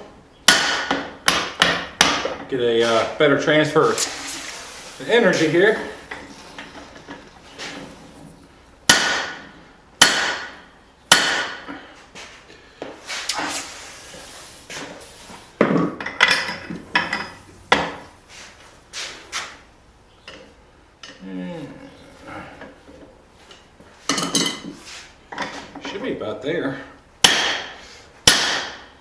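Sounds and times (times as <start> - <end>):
hammer striking hot steel: 8.9 - 11.7, 27.2 - 28.9.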